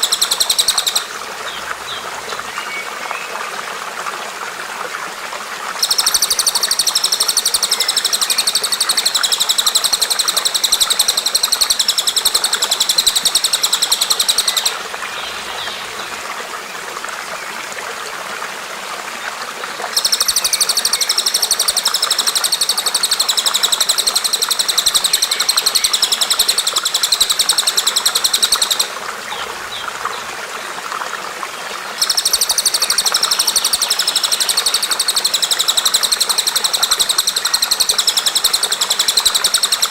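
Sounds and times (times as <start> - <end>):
songbird trilling: 0.0 - 1.1, 5.8 - 15.8, 20.0 - 29.5, 32.0 - 39.9
running water: 0.0 - 39.9.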